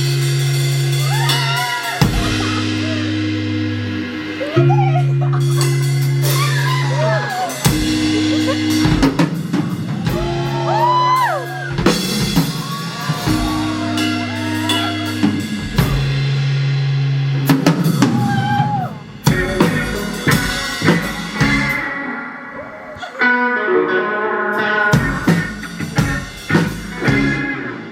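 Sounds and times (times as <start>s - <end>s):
drum kit: 0.0s - 23.2s, 24.5s - 27.9s
held bass notes: 0.0s - 27.9s
pitch-bending lead melody: 2.0s - 10.8s.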